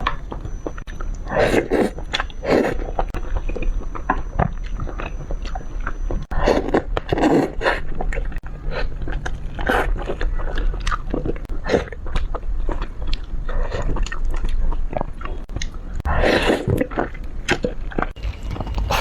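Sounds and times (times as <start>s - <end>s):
wet chewing sounds: 0.0s - 19.0s
loud mouth sounds: 18.2s - 19.0s.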